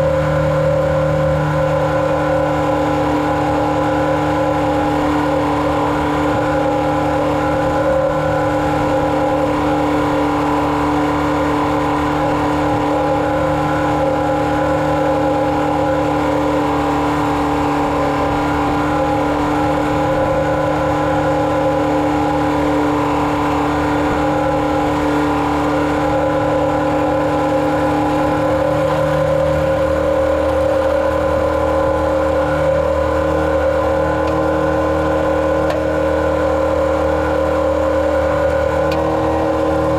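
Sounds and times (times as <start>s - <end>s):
farm vehicle engine running: 0.0s - 39.9s.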